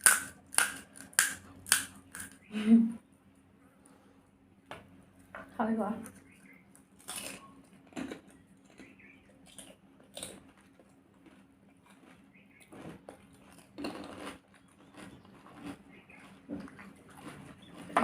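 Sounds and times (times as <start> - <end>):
crisp shells crunching: 0.0 - 2.4, 6.9 - 12.3, 13.0 - 17.9
chewing: 6.0 - 18.0.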